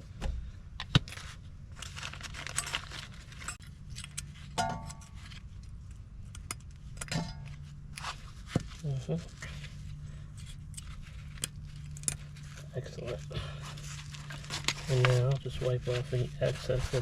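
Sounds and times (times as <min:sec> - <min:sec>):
steady low hum: 0:00.0 - 0:17.0
metal brake hardware clinking: 0:03.4 - 0:05.5, 0:06.2 - 0:08.1.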